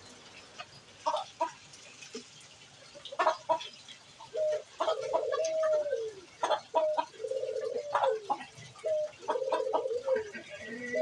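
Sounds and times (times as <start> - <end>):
pigeon clucking calls: 2.9 - 11.0
pigeons cooing: 3.0 - 11.0.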